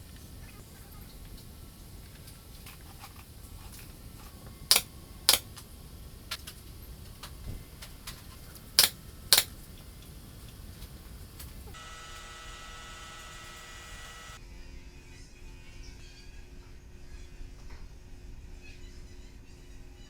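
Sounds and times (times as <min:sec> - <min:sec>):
sharp clicks: 0:04.7 - 0:05.6, 0:07.8 - 0:14.4.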